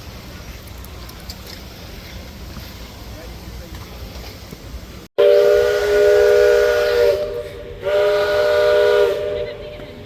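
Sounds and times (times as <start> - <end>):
steam whistle blasts: 5.2 - 9.7.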